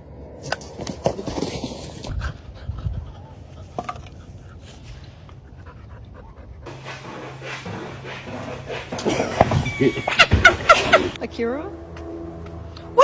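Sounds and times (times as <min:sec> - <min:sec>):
dog panting: 0:05.4 - 0:11.2.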